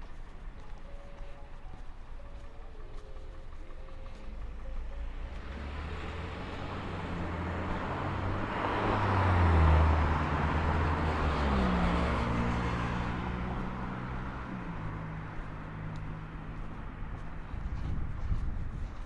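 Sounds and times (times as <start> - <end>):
vehicle passing by: 3.6 - 18.7.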